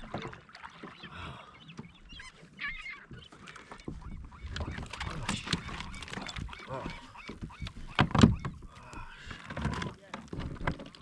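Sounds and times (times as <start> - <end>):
water noise: 0.0 - 11.0
kayak knocks: 3.0 - 11.0.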